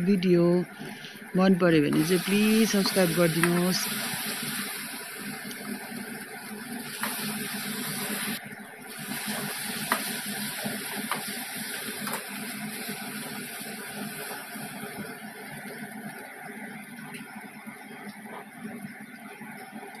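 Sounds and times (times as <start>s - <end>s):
masala sizzling in oil: 1.9s - 16.1s.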